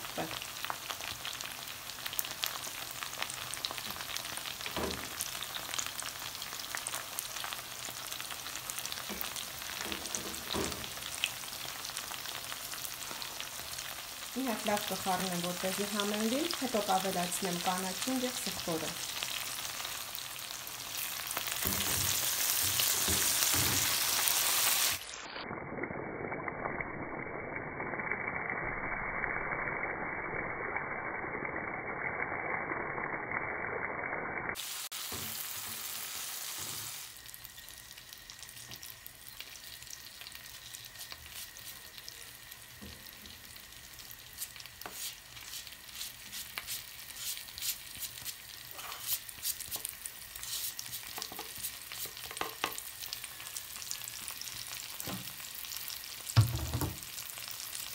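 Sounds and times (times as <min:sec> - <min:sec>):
green beans sizzling in oil: 0:00.0 - 0:30.8, 0:34.5 - 0:57.9
tongs stirring in a pan: 0:43.8 - 0:53.9.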